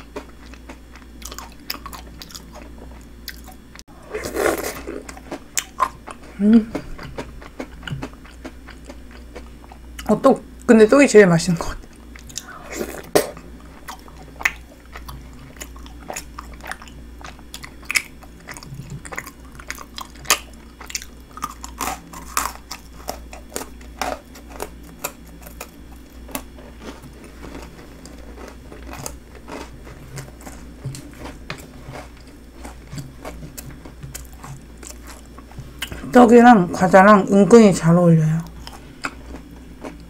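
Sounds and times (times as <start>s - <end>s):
chewing and crunching: 0.0s - 10.1s, 11.8s - 36.1s, 38.4s - 40.0s.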